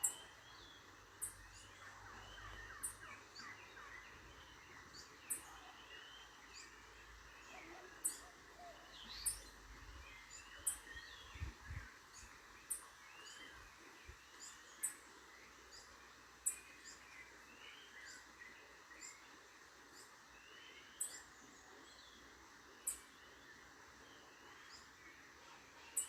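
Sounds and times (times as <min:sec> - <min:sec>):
birds chirping and calling: 0:00.0 - 0:13.6
steady background hiss: 0:00.0 - 0:26.0.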